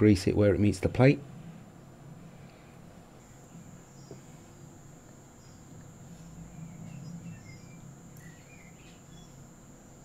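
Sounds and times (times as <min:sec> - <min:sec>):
steady low hum: 0:00.0 - 0:10.0
faint bird chirps: 0:03.1 - 0:10.0.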